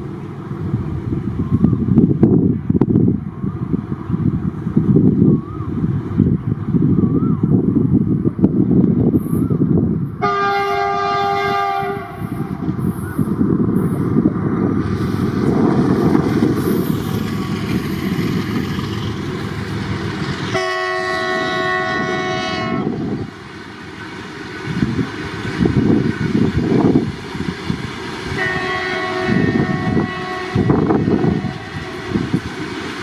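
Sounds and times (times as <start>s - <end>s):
train wheels rumbling on rail: 0.0s - 33.0s
locomotive horn: 10.2s - 12.6s, 20.5s - 23.2s, 28.3s - 32.3s.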